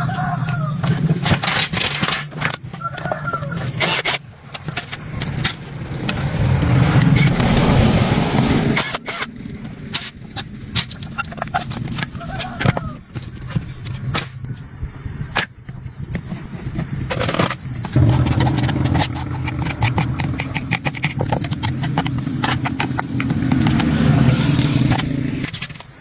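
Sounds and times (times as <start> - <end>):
machine humming and whining: 17.6 - 26.0.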